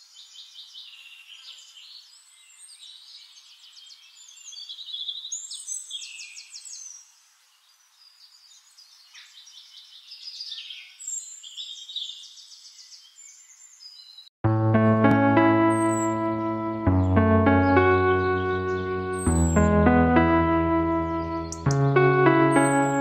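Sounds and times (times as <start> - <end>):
birds singing and chirping: 0.0 - 14.3, 15.7 - 19.8, 20.9 - 23.0
piano music: 14.4 - 23.0.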